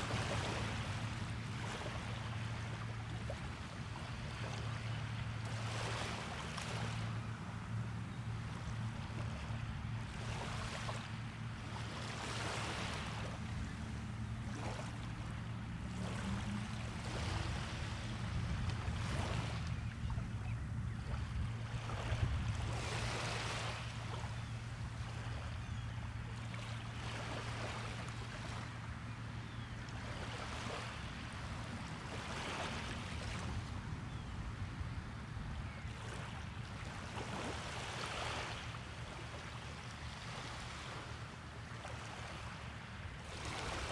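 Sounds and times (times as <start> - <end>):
small waves washing onto beach: 0.0 - 20.2, 35.9 - 43.9.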